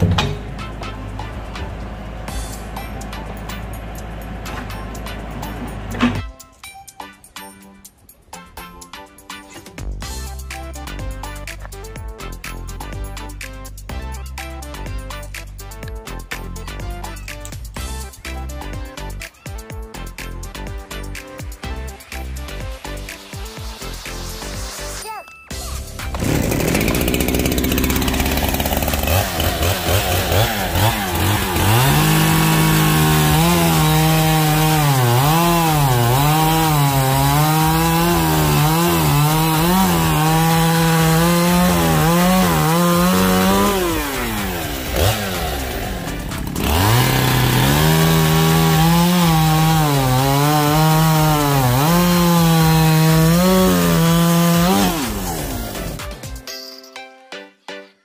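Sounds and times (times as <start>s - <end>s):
chainsaw cutting log: 25.8s - 56.2s.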